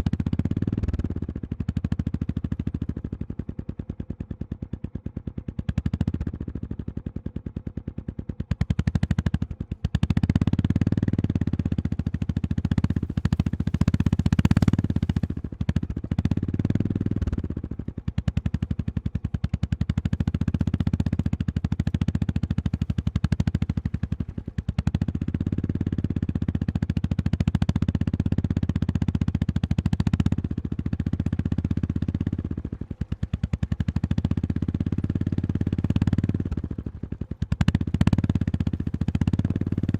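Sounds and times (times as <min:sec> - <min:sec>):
motorcycle engine revving: 0:00.0 - 0:03.2, 0:08.4 - 0:39.9.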